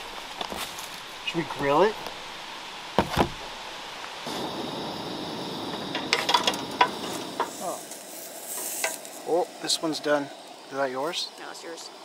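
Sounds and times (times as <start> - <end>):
sandwiches sizzling on a griddle: 0.0 - 12.0.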